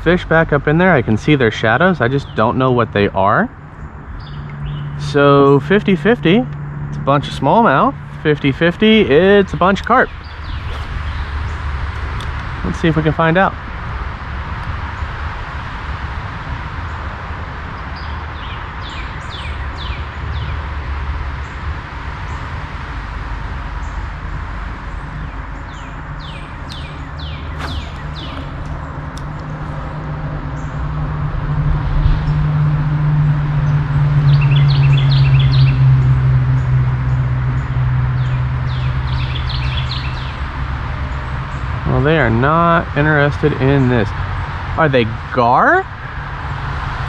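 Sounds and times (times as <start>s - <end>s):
songbirds chirping: 1.6s - 13.0s, 24.8s - 30.9s, 37.1s - 44.2s
wind rumble on microphone: 8.0s - 41.9s
bird singing falling notes: 9.8s - 12.4s, 25.6s - 30.0s
river water flowing: 10.2s - 12.4s, 25.9s - 30.2s.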